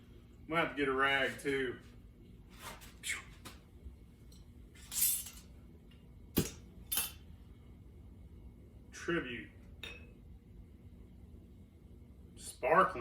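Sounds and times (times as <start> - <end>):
soft rustles and scrapes: 1.1 - 3.6.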